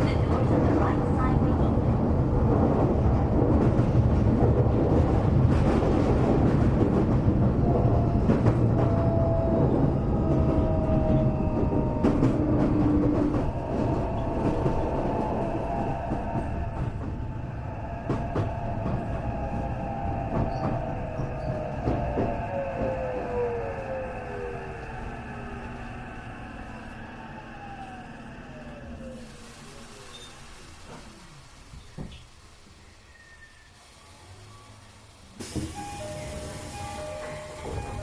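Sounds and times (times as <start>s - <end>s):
electric train running: 34.2s - 38.0s.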